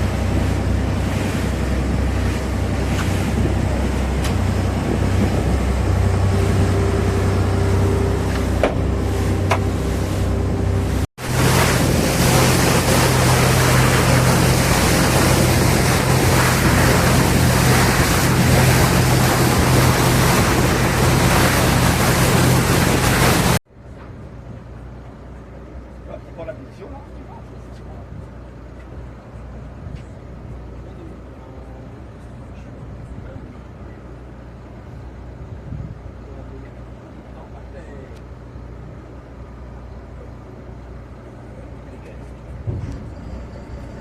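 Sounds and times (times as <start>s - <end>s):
rushing water: 0.0s - 23.6s
boat engine running: 0.0s - 44.0s
wind: 0.0s - 44.0s.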